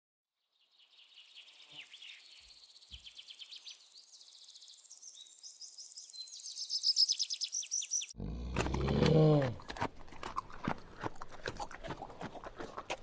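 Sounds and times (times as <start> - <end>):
songbird chirping and trilling: 0.5 - 8.2.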